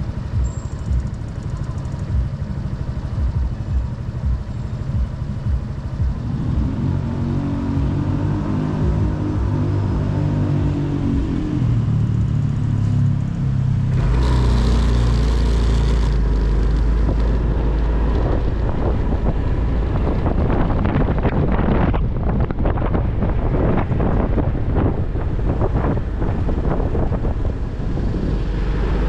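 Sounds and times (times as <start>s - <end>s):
motorcycle engine running: 0.0s - 29.0s
wind buffeting on microphone: 14.8s - 29.0s.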